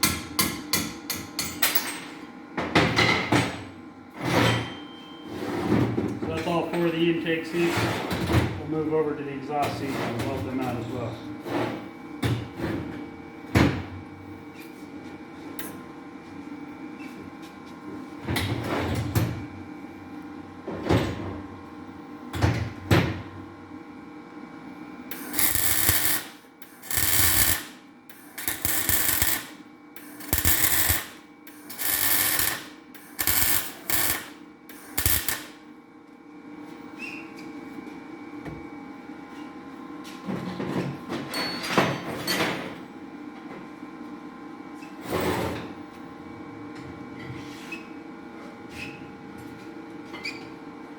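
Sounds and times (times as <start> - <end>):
steady shop hum: 0.0 - 41.0
electric welder crackling: 25.1 - 35.7.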